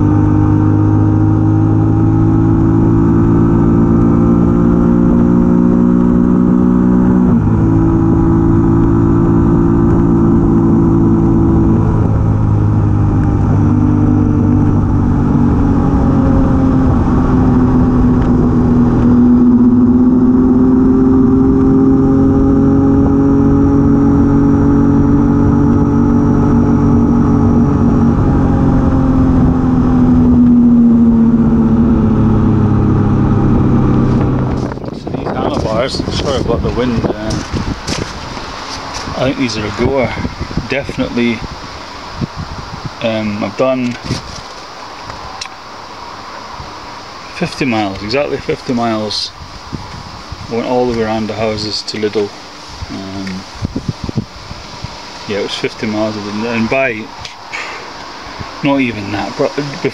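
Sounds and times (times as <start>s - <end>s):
motorcycle engine running: 0.0s - 44.5s.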